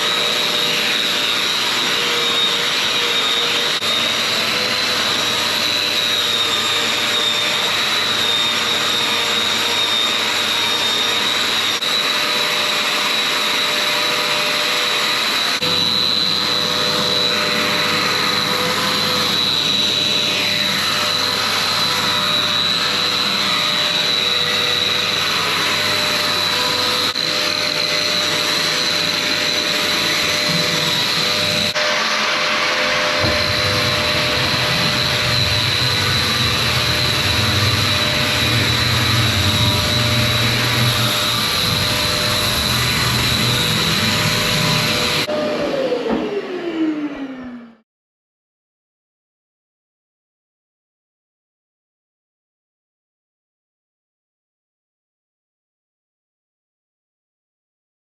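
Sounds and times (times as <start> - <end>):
drywall sander motor whine: 0.0 - 47.8
deeper hum: 33.2 - 45.3.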